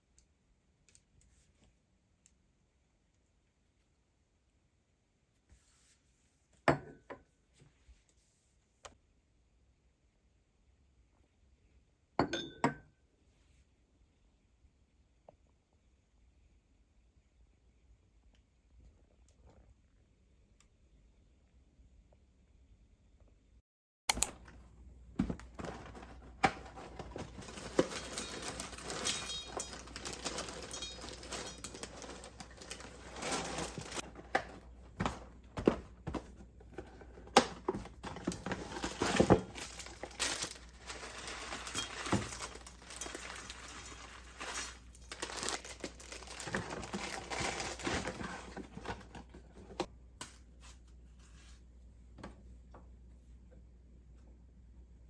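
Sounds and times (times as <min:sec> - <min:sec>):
objects crinkling and rustling: 0:24.2 - 0:51.7.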